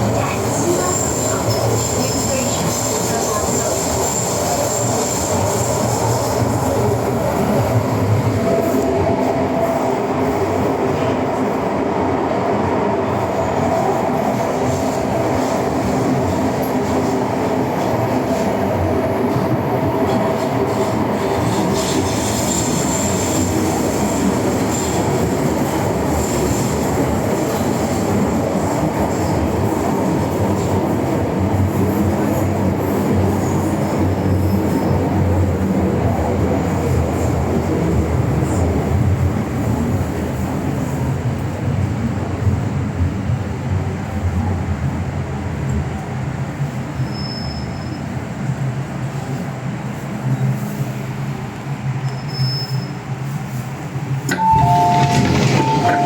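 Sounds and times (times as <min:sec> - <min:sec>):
train wheels rumbling on rail: 0:00.0 - 0:56.0
high wheel squeal: 0:54.3 - 0:56.0.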